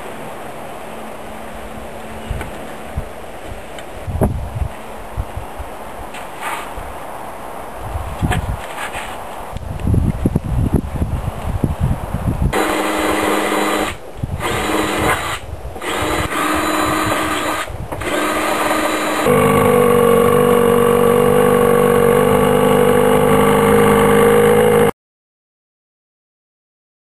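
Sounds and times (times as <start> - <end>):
motor whining: 12.6 - 24.9.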